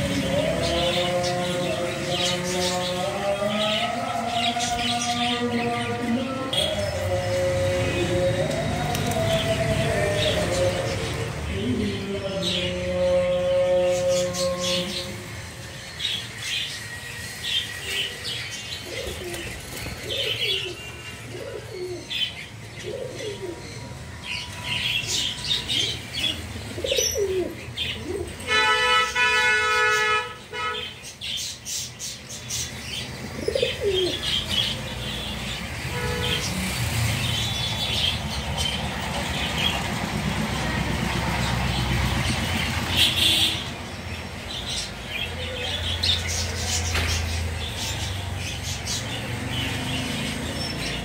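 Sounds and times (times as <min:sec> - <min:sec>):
loud steady horn tone: 0:11.5 - 0:18.3, 0:20.5 - 0:21.7, 0:28.4 - 0:31.0, 0:35.1 - 0:36.9, 0:42.6 - 0:43.8
pigeons cooing: 0:17.5 - 0:30.8, 0:32.6 - 0:43.7.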